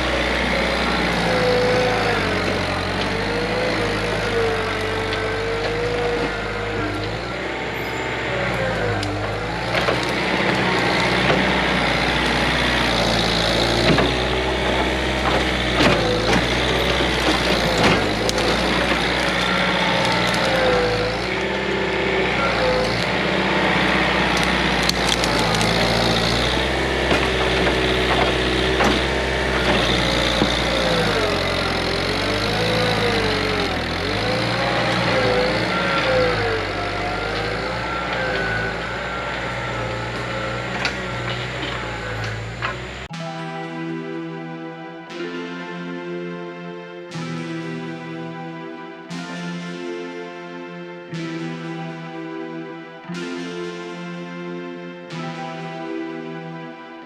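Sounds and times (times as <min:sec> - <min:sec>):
branches cracking and snapping: 0:00.0 - 0:07.3, 0:08.9 - 0:21.7, 0:22.8 - 0:37.7
diesel engine working under load: 0:00.0 - 0:45.2.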